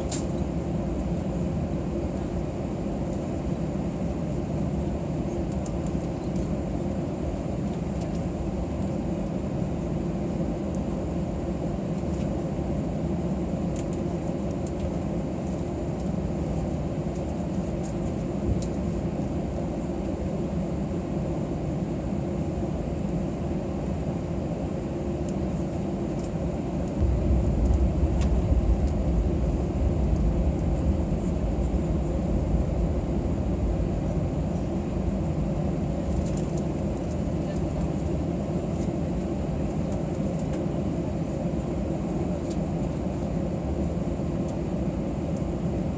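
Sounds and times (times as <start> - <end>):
aircraft cabin hum and rush: 0.0 - 45.9
deep rumble: 26.8 - 38.1.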